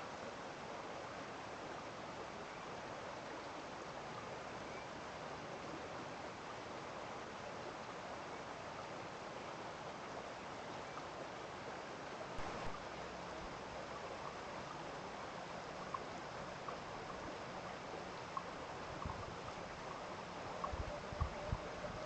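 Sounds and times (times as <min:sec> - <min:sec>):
stream running: 0:00.0 - 0:22.0
faint ticks: 0:12.0 - 0:22.0.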